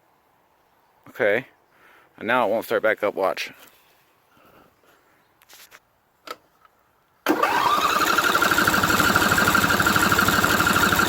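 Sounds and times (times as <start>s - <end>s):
engine cranking on electric starter: 7.2s - 11.0s.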